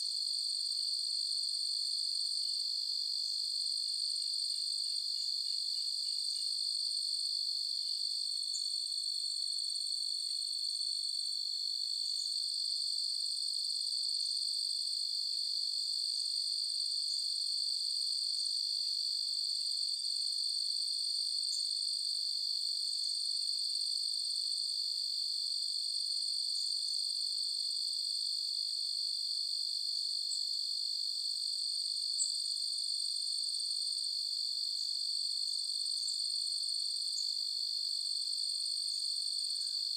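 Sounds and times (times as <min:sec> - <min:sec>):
crickets trilling: 0:37.2 - 0:37.4.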